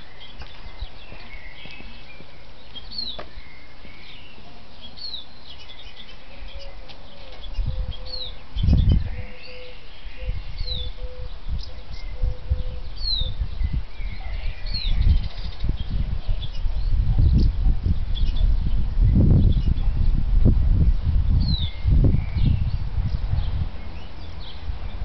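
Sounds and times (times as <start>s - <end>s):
bird calling: 0.0s - 15.6s.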